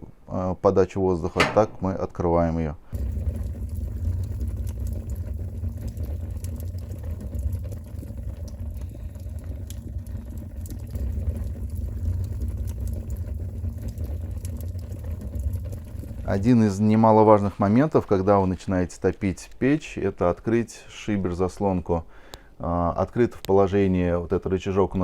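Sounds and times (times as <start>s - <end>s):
fire rumbling in a stove: 2.9s - 17.5s
faint fire crackles: 2.9s - 20.0s.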